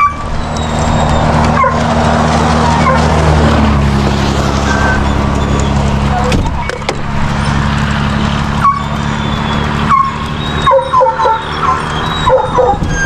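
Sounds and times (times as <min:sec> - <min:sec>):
dogs whining and yipping: 0:00.0 - 0:01.9, 0:02.6 - 0:03.2, 0:08.6 - 0:13.0
vehicle engine hum: 0:00.0 - 0:13.0.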